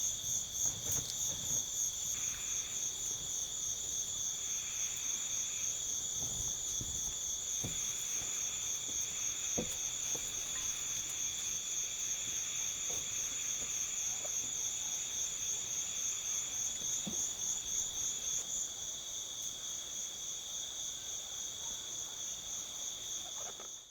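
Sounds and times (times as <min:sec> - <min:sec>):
insects chirring: 0:00.0 - 0:21.4, 0:22.4 - 0:23.9
faint knocks: 0:06.2 - 0:10.8.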